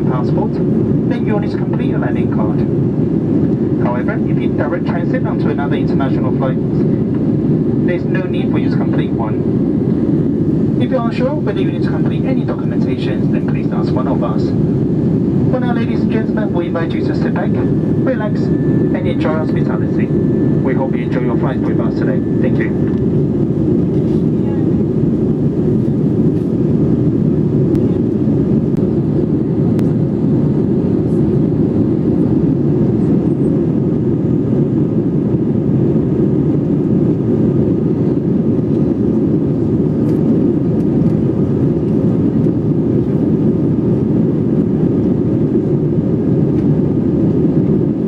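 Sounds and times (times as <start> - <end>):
airliner cabin rumble: 0.0 - 48.0.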